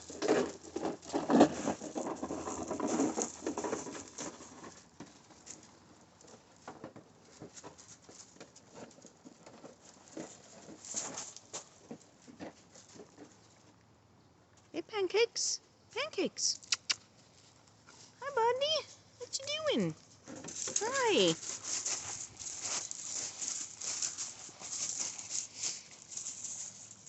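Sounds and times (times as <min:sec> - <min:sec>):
puppies pattering and scuffling: 0:00.0 - 0:13.8, 0:19.4 - 0:27.0.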